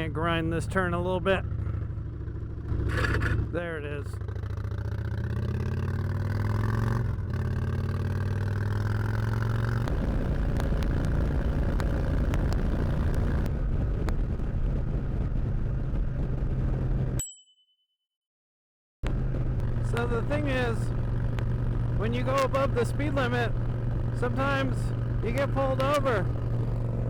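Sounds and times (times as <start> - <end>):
motorcycle engine accelerating: 0.0 - 17.2, 19.0 - 27.0
wind and road noise: 0.0 - 17.2, 19.0 - 27.0.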